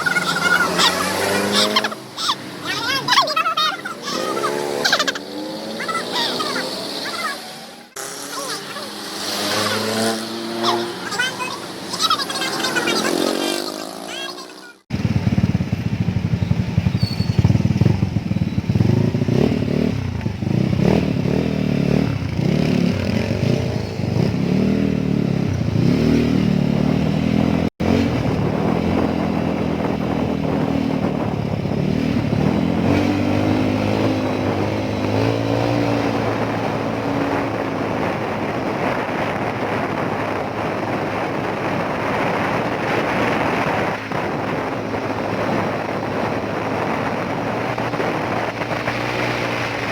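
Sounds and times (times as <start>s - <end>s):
wind and road noise: 0.0s - 49.9s
motorcycle engine running: 14.9s - 49.9s.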